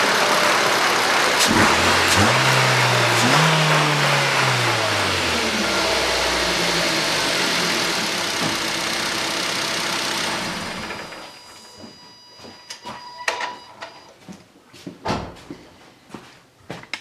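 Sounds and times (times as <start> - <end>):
car engine settling to idle: 0.0 - 11.3.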